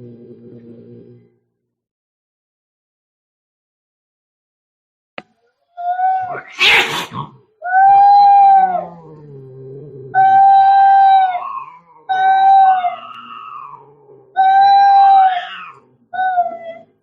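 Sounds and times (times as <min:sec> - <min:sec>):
cat yowling: 0:05.8 - 0:09.0, 0:10.2 - 0:17.0
cat growling: 0:06.0 - 0:17.0.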